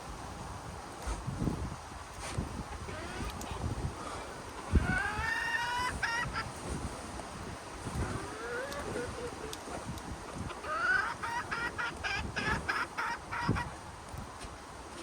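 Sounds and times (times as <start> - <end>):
chicken clucking: 2.7 - 3.7, 4.6 - 6.5, 7.9 - 13.7
chicken rising call: 4.7 - 6.5, 8.0 - 9.5, 10.5 - 13.7.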